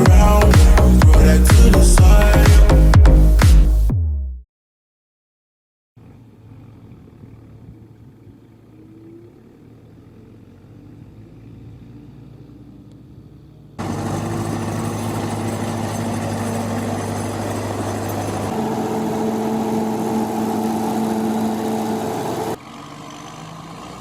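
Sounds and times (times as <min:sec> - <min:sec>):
tractor engines running: 0:00.0 - 0:02.9, 0:11.9 - 0:24.0.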